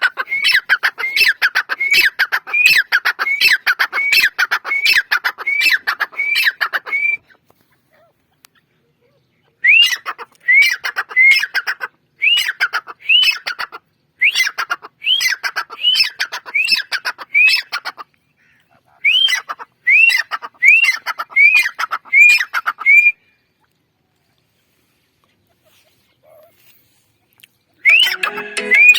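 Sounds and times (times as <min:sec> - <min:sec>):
francolin calling: 0:27.9 - 0:28.9.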